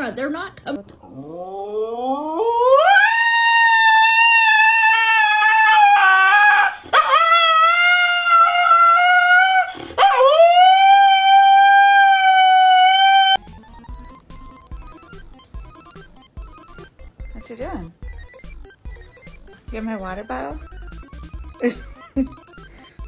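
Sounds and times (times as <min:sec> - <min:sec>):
dog howling: 0:01.1 - 0:13.4.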